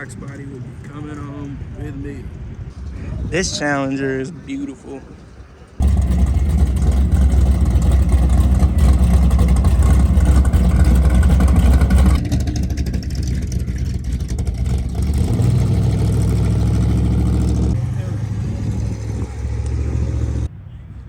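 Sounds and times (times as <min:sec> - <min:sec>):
car engine idling: 0:05.8 - 0:20.5.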